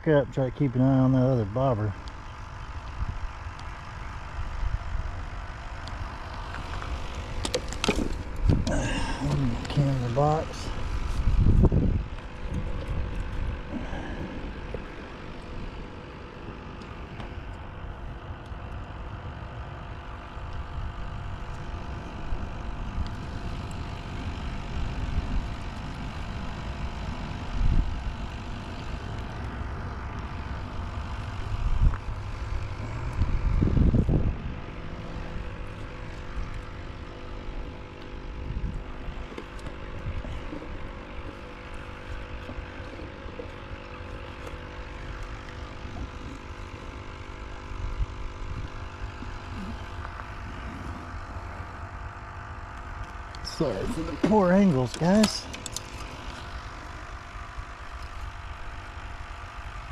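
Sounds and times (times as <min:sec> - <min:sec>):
steady engine-like drone: 0:00.0 - 0:59.9
wind rumbling on microphone: 0:02.3 - 0:15.7, 0:20.6 - 0:37.0.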